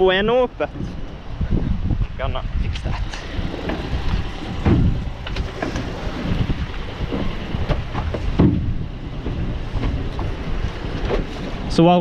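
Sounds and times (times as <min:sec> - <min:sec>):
boat engine idling: 0:00.0 - 0:12.0
wind on microphone: 0:00.0 - 0:12.0
knocks and thuds: 0:03.6 - 0:11.6.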